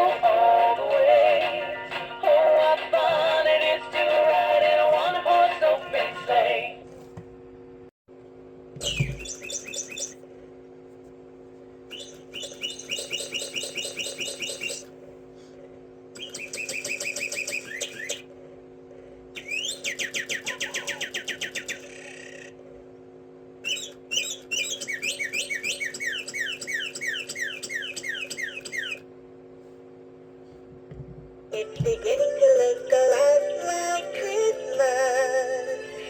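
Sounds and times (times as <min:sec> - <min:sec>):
steady low hum: 0:00.0 - 0:36.0
bird chirps and trills: 0:08.8 - 0:10.2, 0:11.9 - 0:14.9, 0:16.2 - 0:18.3, 0:19.4 - 0:22.6, 0:23.6 - 0:29.1.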